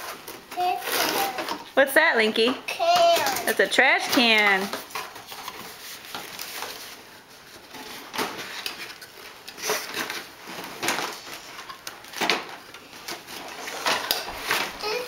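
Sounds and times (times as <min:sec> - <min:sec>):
plastic toy clicks and knocks: 0:02.4 - 0:04.8.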